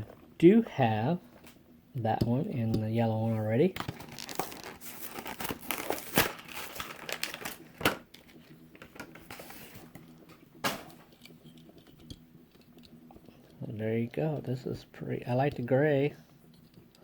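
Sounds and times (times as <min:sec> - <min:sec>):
sharp plastic cracks: 0:03.8 - 0:09.2
plastic packaging crinkling and tearing: 0:03.8 - 0:10.0.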